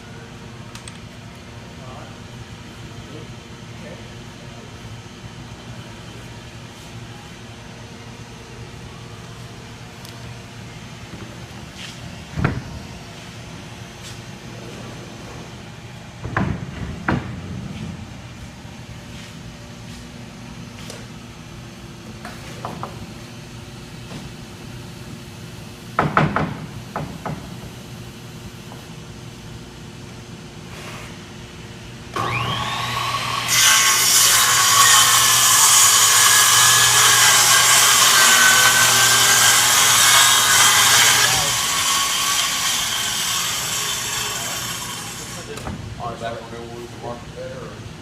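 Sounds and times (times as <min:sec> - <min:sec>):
power saw cutting plywood: 0:32.2 - 0:45.6.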